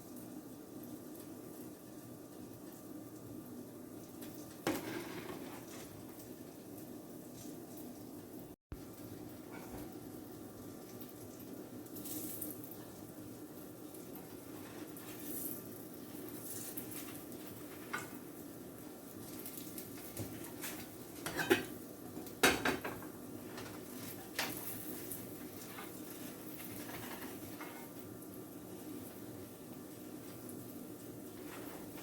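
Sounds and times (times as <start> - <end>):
utensils clinking against pans: 20.5 - 21.8.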